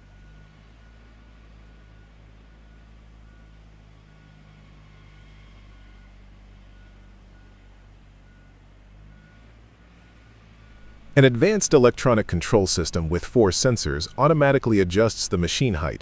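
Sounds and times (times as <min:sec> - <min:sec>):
heavy machine engine droning: 0:00.0 - 0:16.0
faint high pulsing tone: 0:10.0 - 0:16.0.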